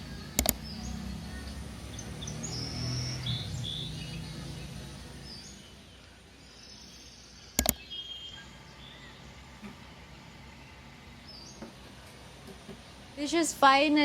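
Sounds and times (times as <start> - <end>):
birds chirping: 0.0 - 13.5
low hum: 0.0 - 13.6
sharp double click: 0.4 - 0.6, 7.6 - 7.8.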